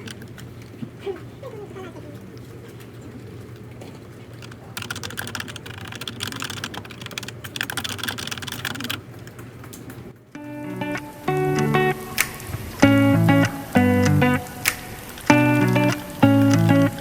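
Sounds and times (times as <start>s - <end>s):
rapid typing on keyboard: 0.0s - 0.4s, 4.4s - 10.0s.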